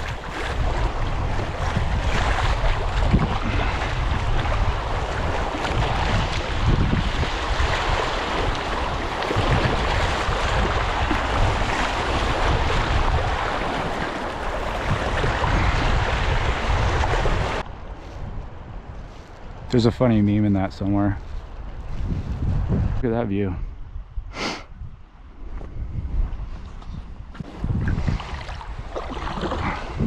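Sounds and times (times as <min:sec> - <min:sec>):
rushing river water: 0:00.0 - 0:17.6, 0:27.5 - 0:30.0
wind buffeting microphone: 0:00.0 - 0:30.0.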